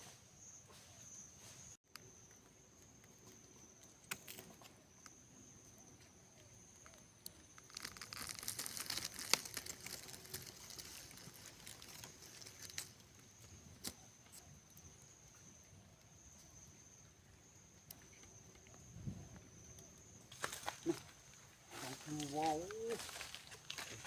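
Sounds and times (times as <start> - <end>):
rustling of dry material: 7.5 - 13.0.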